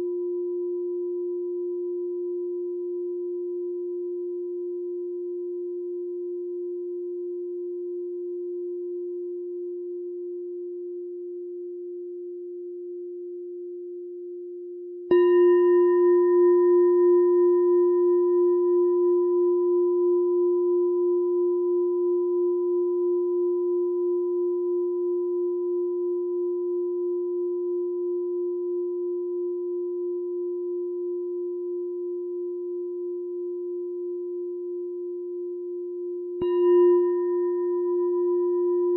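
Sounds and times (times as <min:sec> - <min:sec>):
meditation bell ringing: 0:15.1 - 0:38.9.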